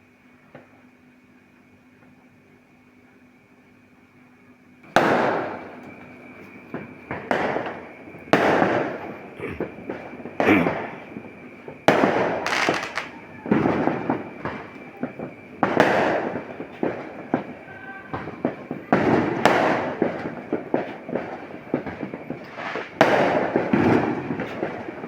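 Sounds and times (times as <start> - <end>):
fireworks banging: 4.9 - 25.0
crackling pops: 11.9 - 13.2.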